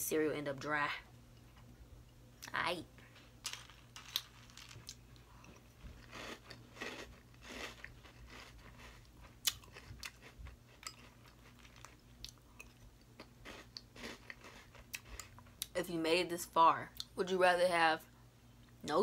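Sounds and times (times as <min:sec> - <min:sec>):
chewing and crunching cereal: 0:03.4 - 0:15.7.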